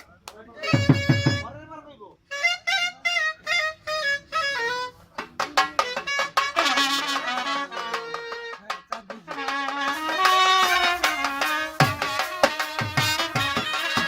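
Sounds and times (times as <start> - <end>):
drum strokes: 0.6 - 1.7, 5.1 - 14.0
brass band playing: 2.3 - 14.0.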